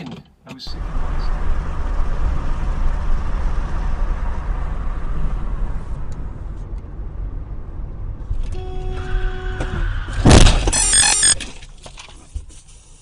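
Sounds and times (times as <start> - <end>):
car road rumble: 0.5 - 13.0
steady tone: 10.4 - 11.4.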